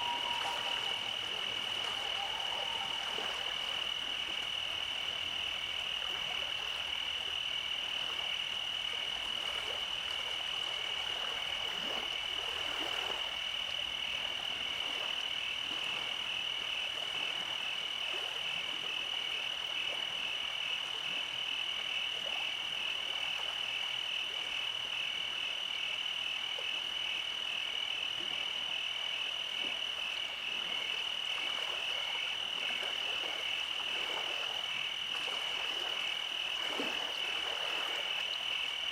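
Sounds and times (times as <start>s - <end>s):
frogs trilling: 0.0s - 9.1s.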